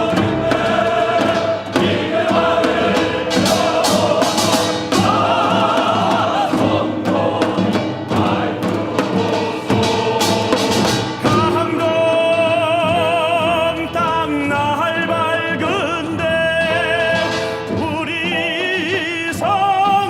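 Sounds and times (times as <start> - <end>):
sharp percussion strikes: 0.0 - 12.0
choir singing: 0.0 - 13.0
orchestral accompaniment: 0.0 - 20.0.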